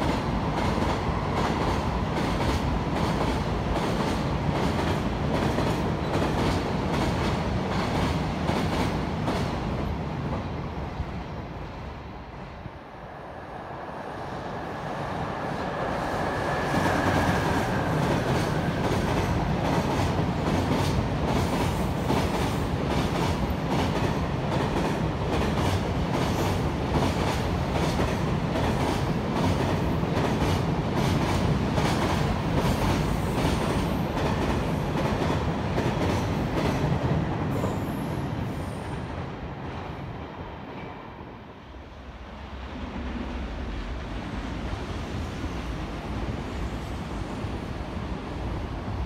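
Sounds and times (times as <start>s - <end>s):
freight train wheels clacking: 15.7s - 37.9s.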